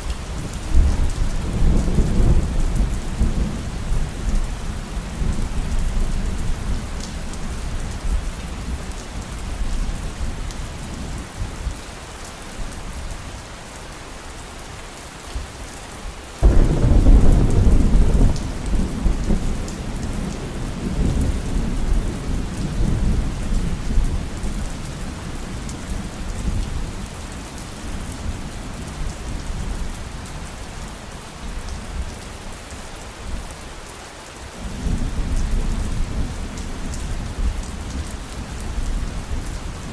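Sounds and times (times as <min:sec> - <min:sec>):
heavy rain falling: 0:00.0 - 0:39.9
thunder clap and rumble: 0:00.3 - 0:08.3, 0:16.4 - 0:26.8.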